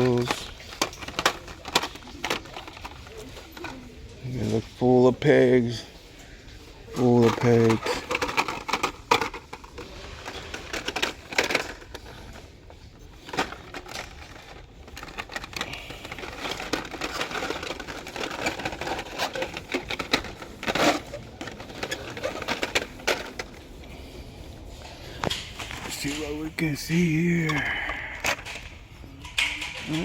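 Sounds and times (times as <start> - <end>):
handling clicks and knocks: 0.0 - 5.9, 6.9 - 24.0
steady background hum: 0.0 - 30.0.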